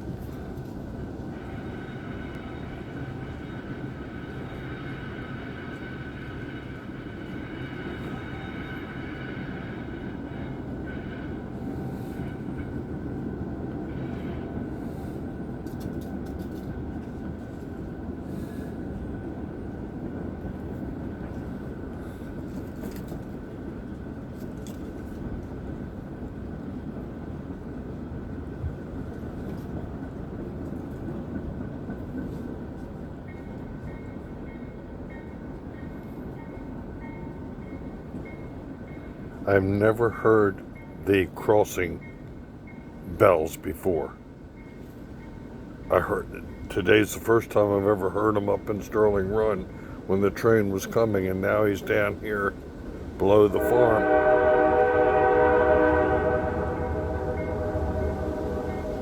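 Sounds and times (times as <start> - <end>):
train rumbling along track: 0.0 - 59.0
railroad crossing bells ringing: 1.3 - 15.6, 33.2 - 52.6, 53.2 - 59.0.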